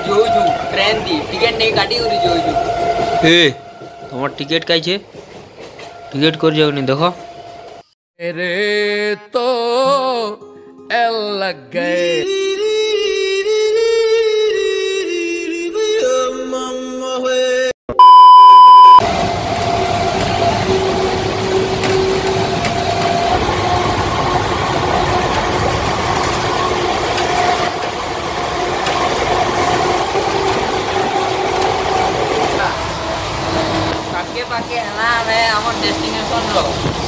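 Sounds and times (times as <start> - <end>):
passenger train running: 0.0 - 7.8, 19.0 - 37.0
background music: 9.2 - 12.8
loud electronic beep: 17.9 - 19.0.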